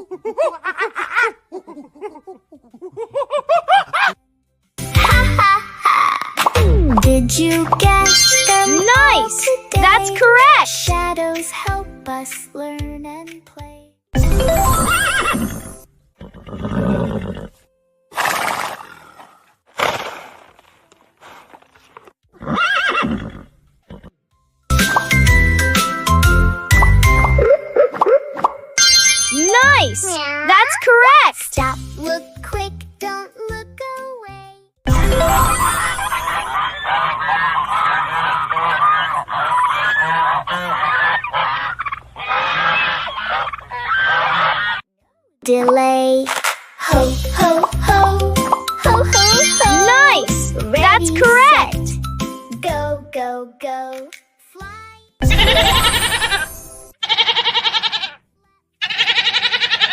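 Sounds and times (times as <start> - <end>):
horse neighing: 22.4 - 24.1, 58.8 - 59.9
geese honking: 36.6 - 44.8.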